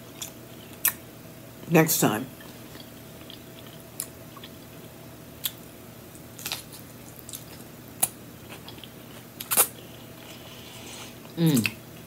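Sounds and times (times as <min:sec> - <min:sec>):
faint steady hum: 0:00.0 - 0:12.0
wet chewing sounds: 0:02.4 - 0:12.0.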